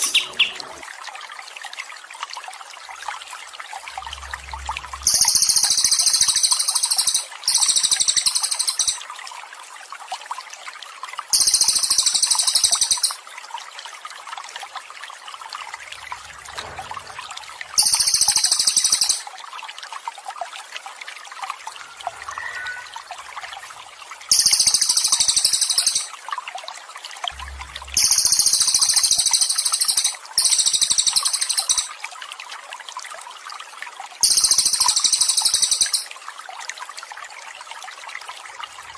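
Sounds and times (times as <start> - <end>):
water trickling: 0.0 - 38.9
songbird buzzy trill: 5.0 - 9.0, 11.4 - 13.2, 17.8 - 19.2, 24.3 - 26.1.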